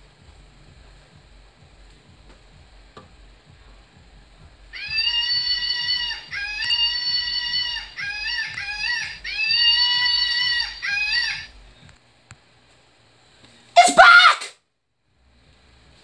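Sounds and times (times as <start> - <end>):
high screaming animal call: 4.7 - 11.6, 13.8 - 14.5.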